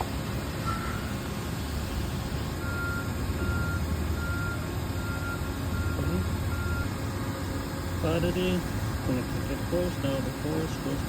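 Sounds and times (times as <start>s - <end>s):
short electronic beeps: 0.6s - 1.1s, 2.5s - 6.9s.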